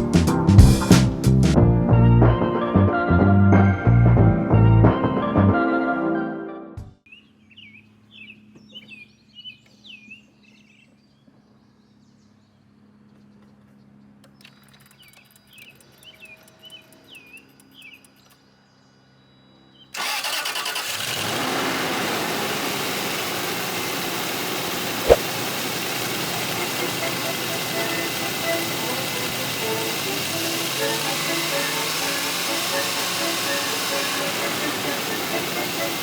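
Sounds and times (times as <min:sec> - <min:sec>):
birds chirping: 0:07.1 - 0:19.9
car engine starting and running: 0:20.0 - 0:36.0.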